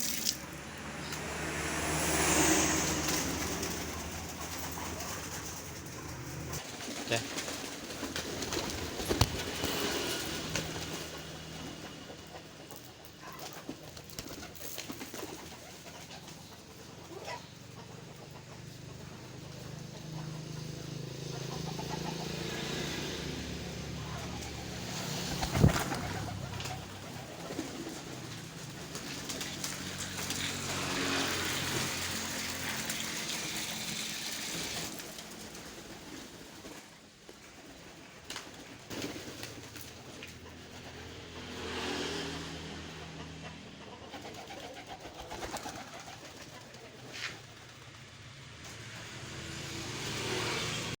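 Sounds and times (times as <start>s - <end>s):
pigeons cooing: 23.8s - 29.8s.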